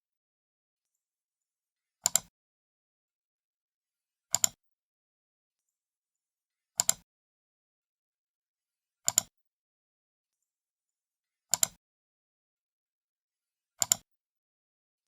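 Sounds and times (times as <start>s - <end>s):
computer mouse button clicks: 2.0s - 2.3s, 4.3s - 4.6s, 6.8s - 7.0s, 9.1s - 9.3s, 13.8s - 14.0s.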